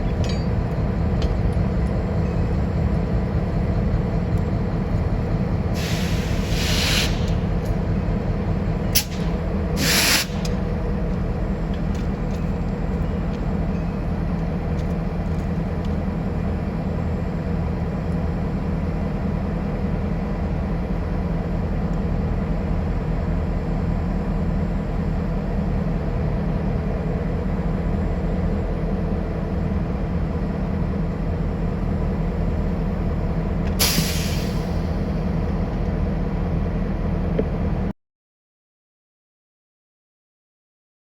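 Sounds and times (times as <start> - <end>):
train rumbling: 0.0 - 37.9
sharp hiss of air: 5.8 - 7.4, 9.8 - 10.5, 33.8 - 34.7.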